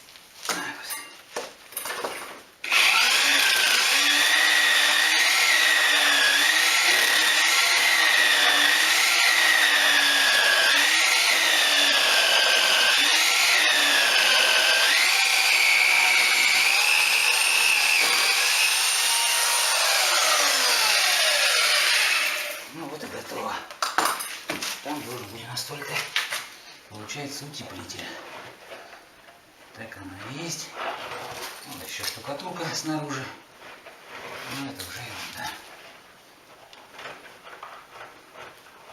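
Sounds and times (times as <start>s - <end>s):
power tool cutting into wall: 2.6s - 22.7s.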